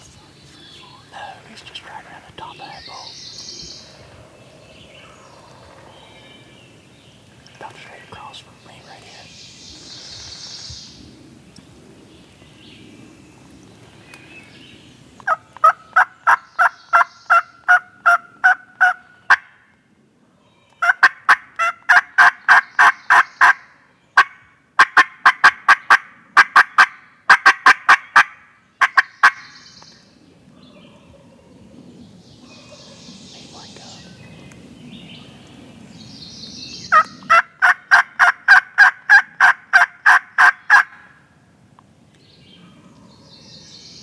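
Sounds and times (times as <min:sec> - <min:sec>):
turkey yelping: 0:36.9 - 0:41.0.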